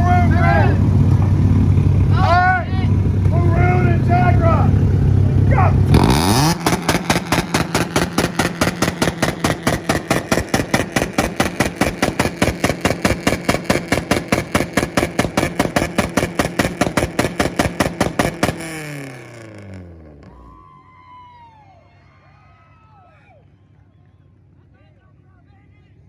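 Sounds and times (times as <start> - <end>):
engine on launch limiter banging: 0.0 - 20.6
engine revs falling: 0.0 - 21.3.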